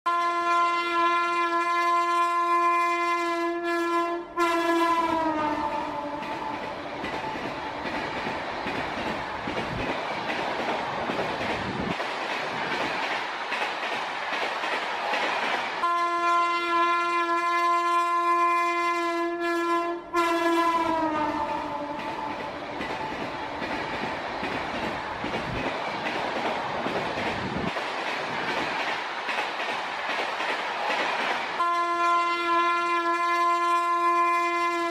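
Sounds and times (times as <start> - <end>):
train horn blast: 0.1 - 6.6, 15.8 - 22.5, 31.6 - 34.9
rushing noise of passing train: 0.1 - 34.9.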